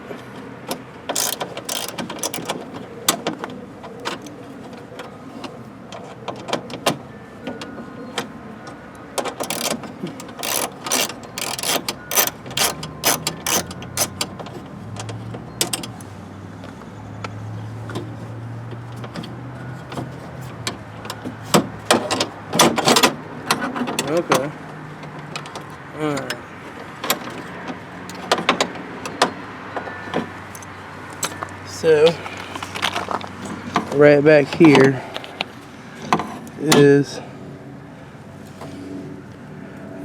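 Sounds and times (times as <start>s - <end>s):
screwdriver clicking and clattering: 1.1s - 2.6s, 9.4s - 9.8s, 10.4s - 14.3s.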